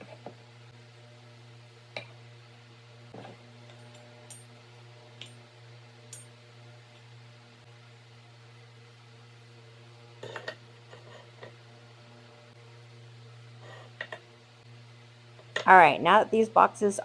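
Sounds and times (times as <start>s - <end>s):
light clinks and taps: 3.7s - 4.5s.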